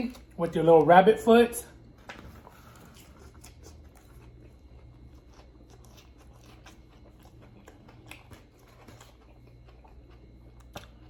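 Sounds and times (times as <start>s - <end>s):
steady low hum: 0.0s - 11.0s
chewing and mouth sounds: 2.4s - 11.0s.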